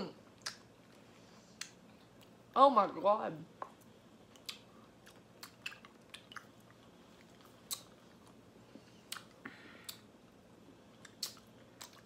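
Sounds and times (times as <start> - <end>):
wet mouth clicks and smacks: 0.4 - 0.7, 4.3 - 8.0, 9.1 - 10.1, 11.0 - 12.0
person chewing candy: 4.2 - 10.2, 10.8 - 12.0.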